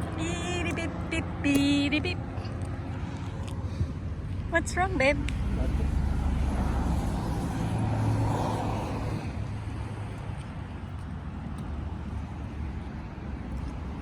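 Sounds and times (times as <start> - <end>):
car passing: 0.0 - 14.0
low rumble: 3.9 - 10.5.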